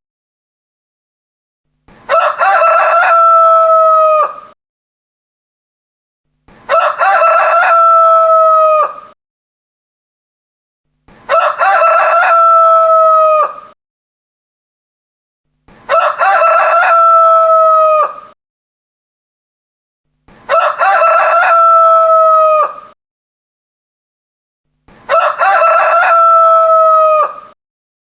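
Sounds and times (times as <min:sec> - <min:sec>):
rooster crowing: 0:02.1 - 0:04.6, 0:06.7 - 0:09.2, 0:11.3 - 0:13.8, 0:15.9 - 0:18.4, 0:20.5 - 0:23.0, 0:25.1 - 0:27.6.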